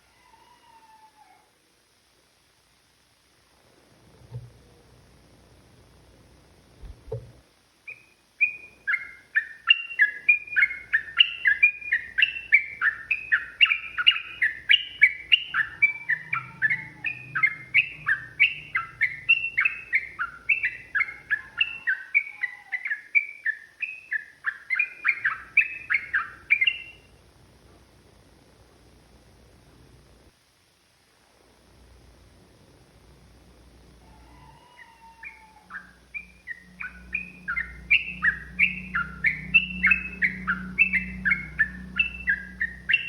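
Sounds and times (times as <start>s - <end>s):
bird singing rapid loud notes: 7.8s - 27.2s, 34.4s - 43.0s.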